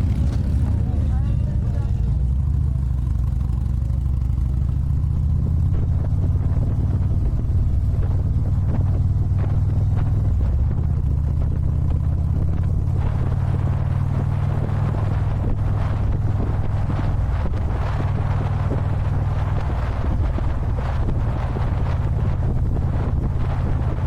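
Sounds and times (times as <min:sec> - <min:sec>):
motorcycle engine cruising: 0:00.0 - 0:24.0
wind noise on microphone: 0:00.0 - 0:24.0.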